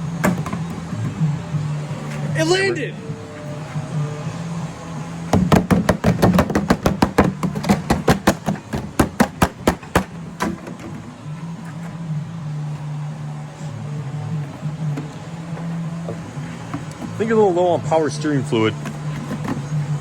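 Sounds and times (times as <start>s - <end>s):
steady low hum: 0.0s - 20.0s
rapid sharp knocks: 5.3s - 10.6s.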